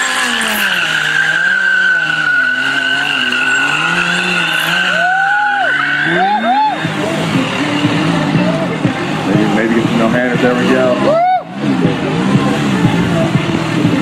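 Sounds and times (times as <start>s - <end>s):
tyre squealing: 0.0s - 8.6s
motorcycle engine revving: 0.0s - 14.0s.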